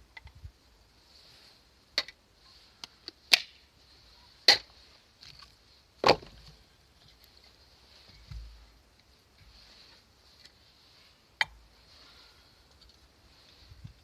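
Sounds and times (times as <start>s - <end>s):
axe chopping firewood: 4.5s - 4.7s, 6.0s - 6.4s.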